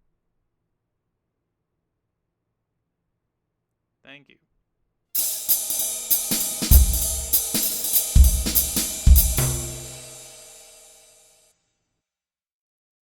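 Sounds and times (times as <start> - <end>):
drum kit outro music: 5.2 - 11.0
cymbal and hi-hat hits: 5.2 - 11.1
heavy bass drum hits: 5.3 - 10.6.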